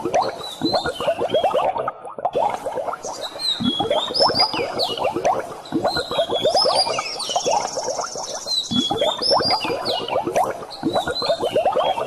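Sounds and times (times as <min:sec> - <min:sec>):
birds chirping: 0:03.0 - 0:12.0.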